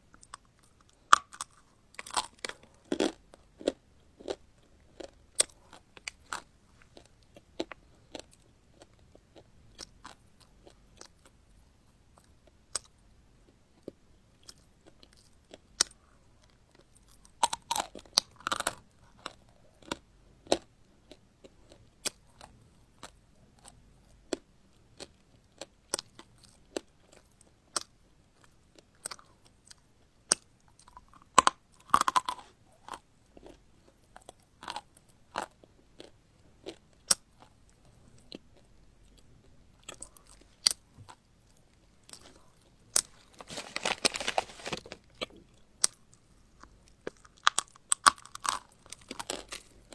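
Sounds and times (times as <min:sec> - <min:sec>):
chewing crunchy food: 0:00.2 - 0:11.4, 0:13.7 - 0:49.9.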